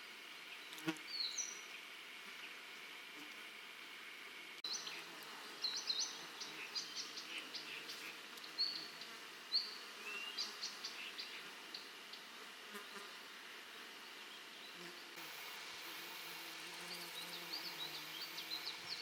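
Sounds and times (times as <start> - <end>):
high insect buzz: 4.7 - 19.0.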